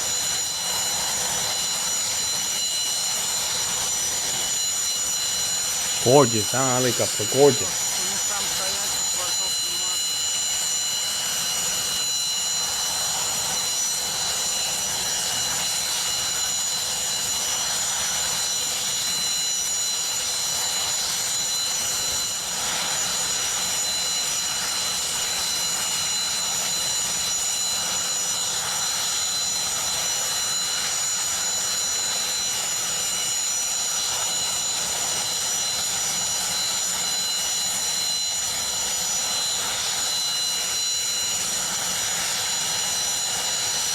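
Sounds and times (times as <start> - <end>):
helicopter engines and rotor: 0.0 - 43.9
high turbine whine: 0.0 - 43.9.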